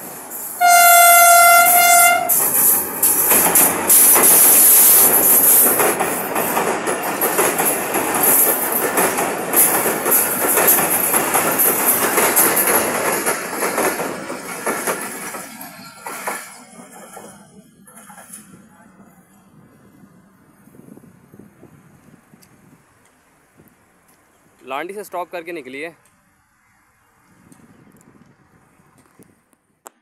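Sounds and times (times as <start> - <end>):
train rumbling across rail bridge: 0.0 - 24.6
diesel locomotive horn blast: 0.6 - 2.4
wheels clickety-clack over rails: 1.3 - 18.7.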